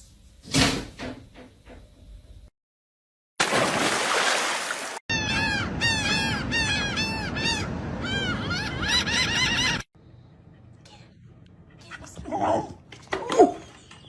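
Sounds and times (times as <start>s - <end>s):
bird calling: 5.1s - 9.9s.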